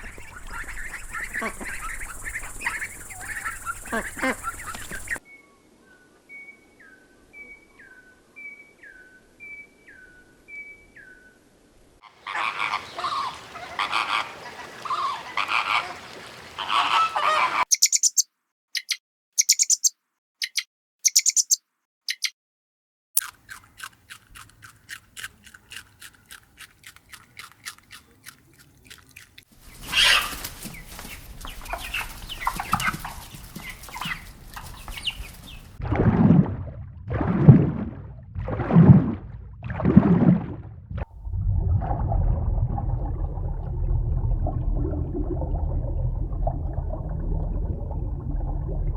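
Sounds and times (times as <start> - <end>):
fast clicking bird calls: 0.0 - 5.2, 16.7 - 22.4, 23.2 - 35.8
noisy fowl calls: 0.0 - 5.2, 12.0 - 18.2, 29.8 - 30.6
short high bird chirps: 17.7 - 22.4.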